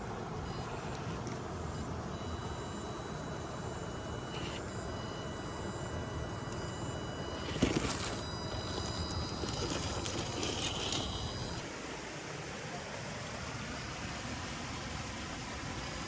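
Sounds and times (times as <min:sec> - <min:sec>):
electric motor whining: 0:00.4 - 0:11.6.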